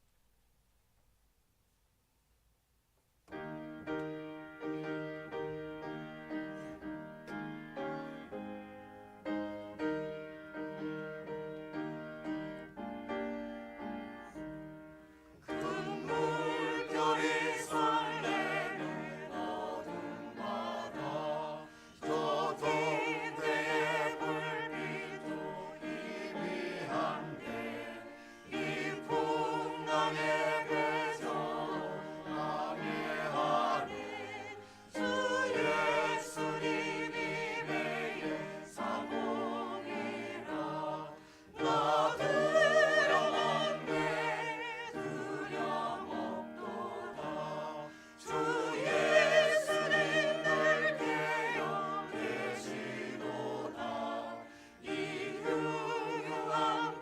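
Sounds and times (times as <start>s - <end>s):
piano accompaniment: 3.3s - 57.0s
choir singing a hymn: 4.1s - 57.0s.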